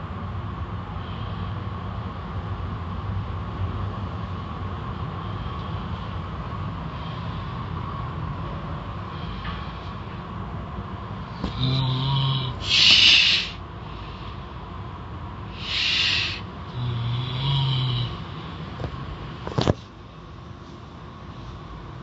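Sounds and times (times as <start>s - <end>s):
person snoring: 11.4s - 13.6s, 15.5s - 18.3s.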